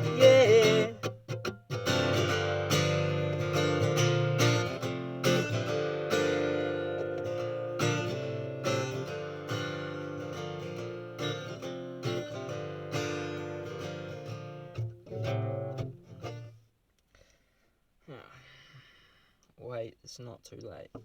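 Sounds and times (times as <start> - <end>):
acoustic guitar strumming chords: 0.0 - 16.6.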